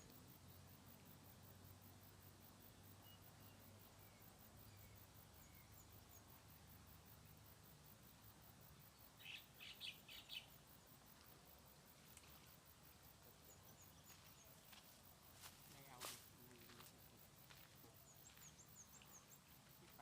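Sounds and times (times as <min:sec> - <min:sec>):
quick high bird chirps: 0:09.2 - 0:10.5.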